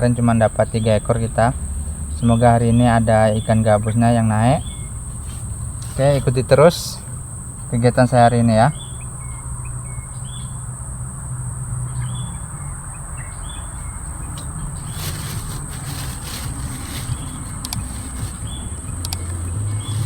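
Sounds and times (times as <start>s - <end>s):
faint clicks: 14.3s - 20.0s.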